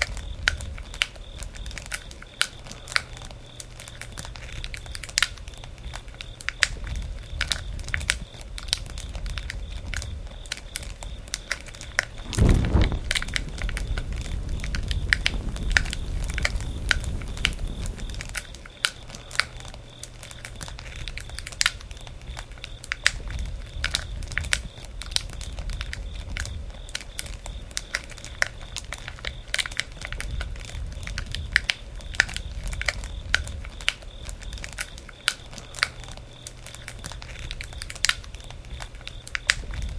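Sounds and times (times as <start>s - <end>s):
campfire crackling and popping: 12.1s - 18.6s
rumble of flames: 12.1s - 18.6s
rushing swell: 12.2s - 18.4s.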